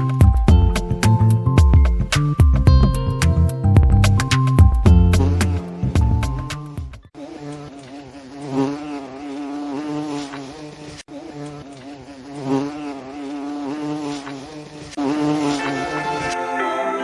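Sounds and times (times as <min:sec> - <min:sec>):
bee buzzing in flight: 0:07.2 - 0:16.3.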